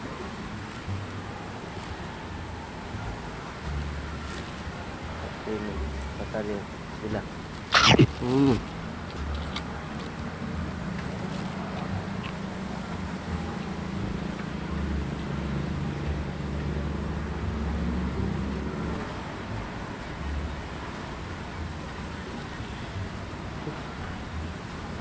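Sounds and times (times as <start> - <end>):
traffic noise: 0.0 - 25.0
vehicle engine rumbling: 0.0 - 25.0.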